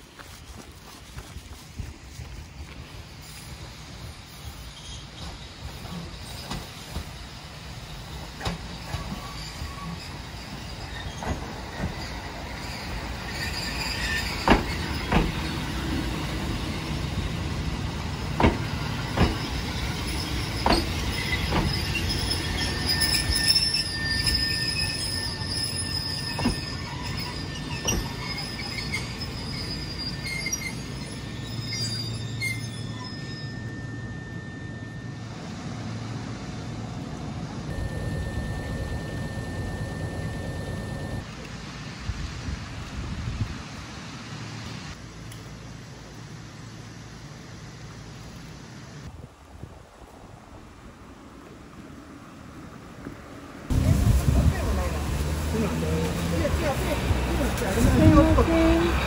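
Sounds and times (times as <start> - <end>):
wheel squeal on rail: 3.2 - 35.3, 37.7 - 41.2.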